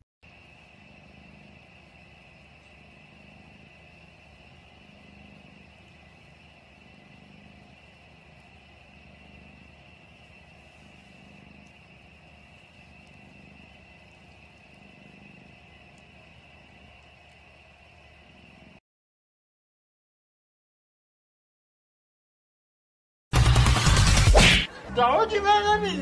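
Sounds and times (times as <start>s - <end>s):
cat purring: 0.3s - 18.8s.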